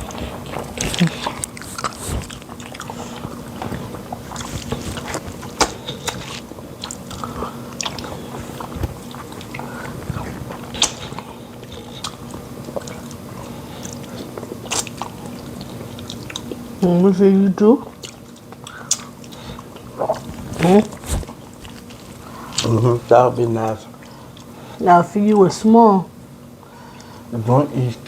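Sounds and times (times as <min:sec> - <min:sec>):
wet chewing and lip smacks: 0:00.0 - 0:16.7, 0:17.8 - 0:22.8.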